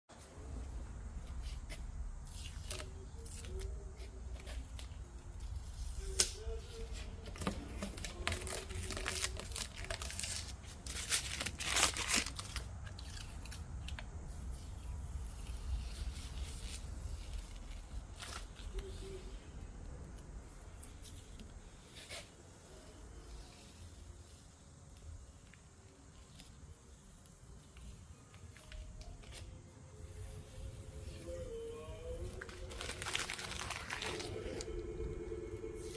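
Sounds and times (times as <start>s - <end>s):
tape crinkling: 1.2s - 19.2s, 24.9s - 34.8s
tape ripping off: 7.8s - 14.0s.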